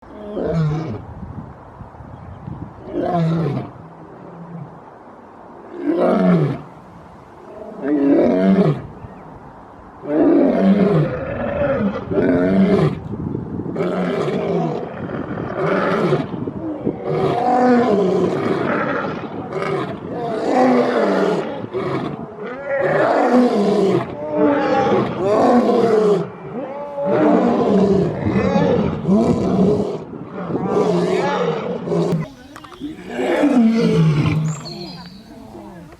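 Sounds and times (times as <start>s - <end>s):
lion roaring: 16.9s - 35.9s.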